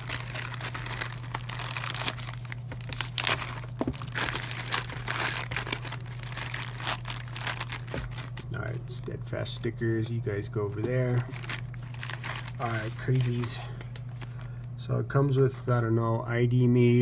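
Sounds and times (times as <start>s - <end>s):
package being torn open: 0.0s - 8.5s, 11.4s - 13.5s
packaging crinkling and rustling: 0.0s - 9.2s, 10.8s - 14.6s
steady low hum: 0.0s - 17.0s.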